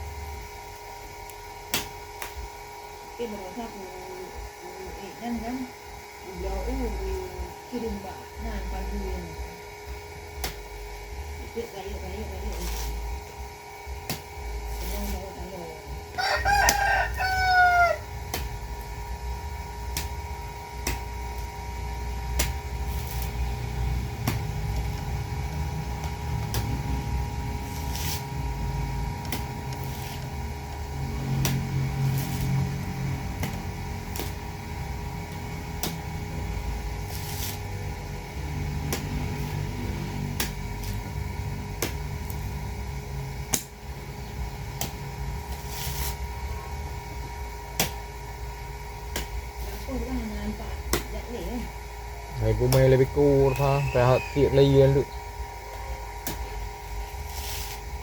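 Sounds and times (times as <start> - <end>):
rooster crowing: 16.1 - 18.2, 53.4 - 55.2.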